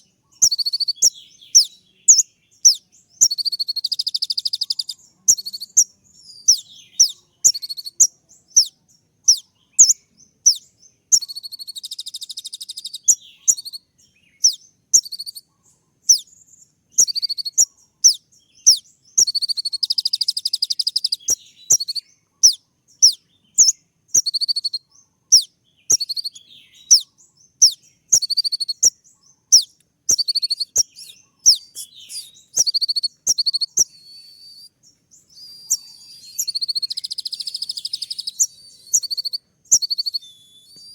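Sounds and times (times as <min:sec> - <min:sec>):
bird buzzy trills: 0:17.0 - 0:40.7
bird whistling sharp high notes: 0:29.6 - 0:40.9.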